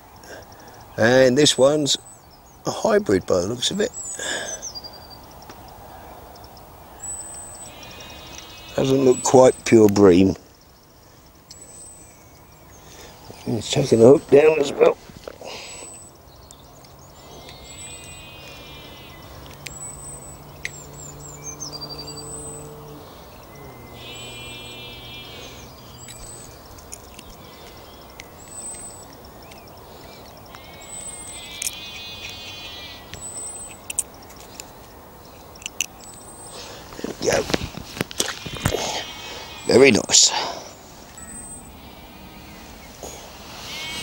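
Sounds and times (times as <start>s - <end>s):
bird repeating short call: 22.2s - 26.2s, 38.2s - 44.0s
thin high bird notes: 38.2s - 44.0s.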